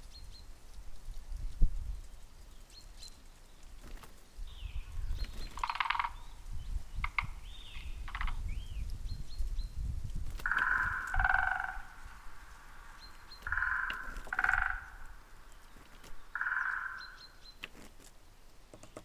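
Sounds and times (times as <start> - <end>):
low wind rumble: 0.0 - 18.7
birds chirping: 0.0 - 19.0
bird rattle call: 5.0 - 6.3, 10.2 - 18.2
low bird call: 10.4 - 17.8.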